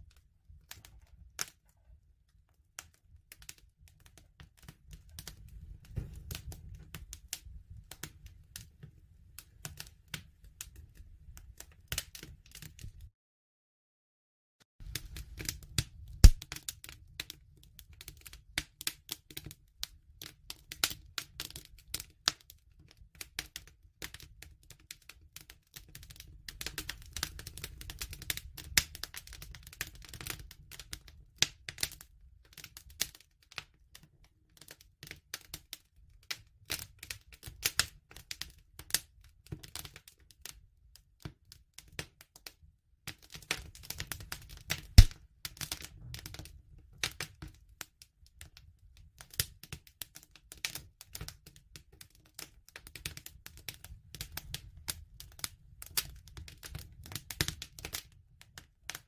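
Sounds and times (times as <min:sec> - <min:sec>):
wood crackling and popping: 0:00.0 - 0:13.1, 0:14.8 - 0:35.7, 0:43.1 - 0:47.8, 0:48.4 - 0:59.0
low rumble of flame: 0:03.0 - 0:13.1, 0:14.8 - 0:18.4.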